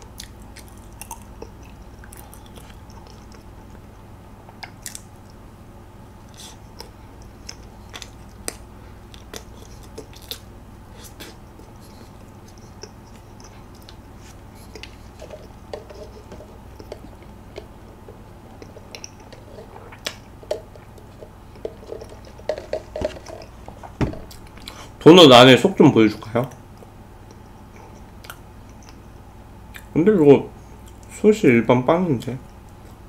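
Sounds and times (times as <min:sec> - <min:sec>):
wet mouth clicks and smacks: 0:04.5 - 0:05.4, 0:06.3 - 0:10.5, 0:26.8 - 0:29.0, 0:29.7 - 0:29.9.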